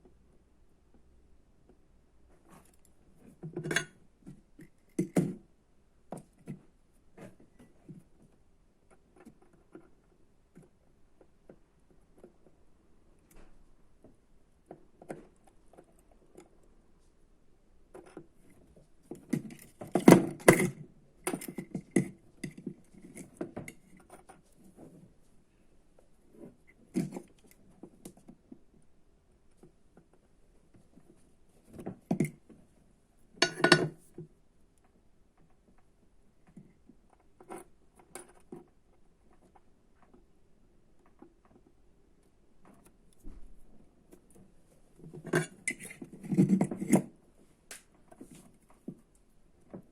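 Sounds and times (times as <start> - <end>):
small tools and parts clattering: 33.4 - 34.2, 45.0 - 47.2.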